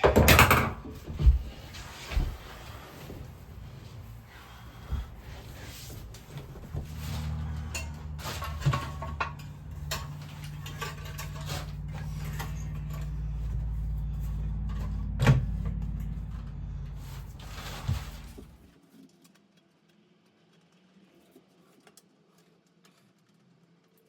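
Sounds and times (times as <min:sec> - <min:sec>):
clicks and knocks: 0:00.0 - 0:02.4.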